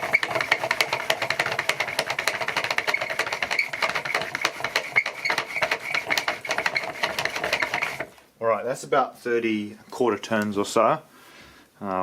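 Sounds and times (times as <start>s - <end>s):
hand-cranked generator clicking: 0.0s - 8.1s.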